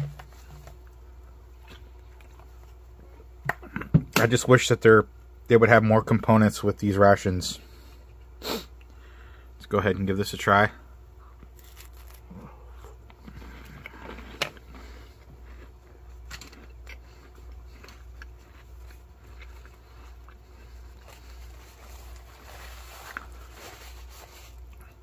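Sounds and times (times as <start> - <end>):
low steady hum: 0.0 - 25.0
faint chewing: 0.6 - 3.8, 11.2 - 25.0
cracker crunch: 11.2 - 25.0.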